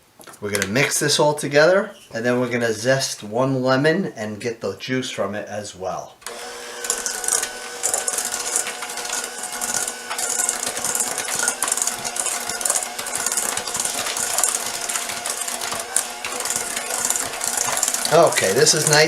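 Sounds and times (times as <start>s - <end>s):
electric hand mixer motor: 6.2s - 19.0s
beaters scraping and rattling in bowl: 6.3s - 19.0s.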